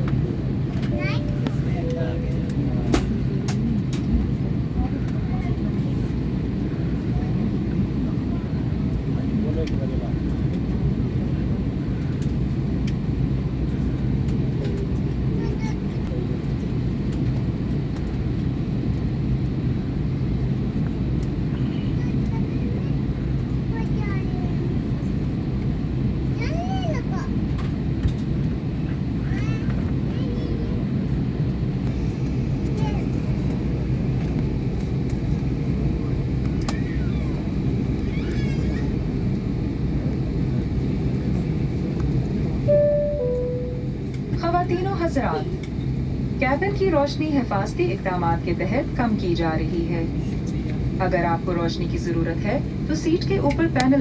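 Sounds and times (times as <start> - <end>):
airliner cabin rumble: 0.0 - 54.0.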